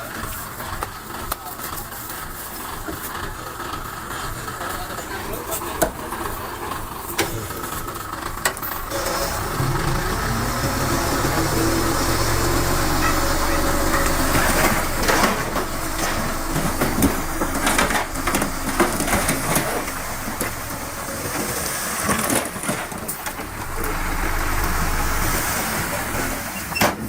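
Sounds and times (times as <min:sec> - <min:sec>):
diesel machinery engine running: 0:00.0 - 0:26.8
crunching and knocking: 0:09.4 - 0:25.1.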